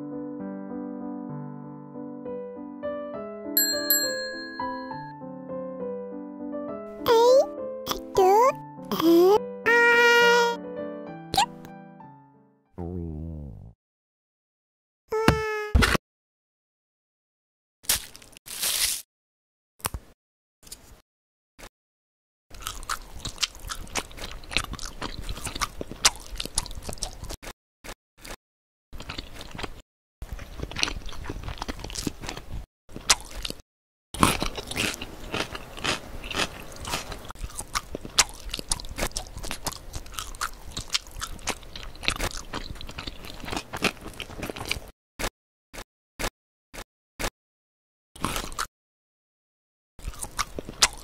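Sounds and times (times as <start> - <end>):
crunchy biting and chewing: 17.8 - 19.0, 22.5 - 28.4, 29.0 - 33.6, 34.2 - 45.3, 48.2 - 48.7, 50.0 - 51.0.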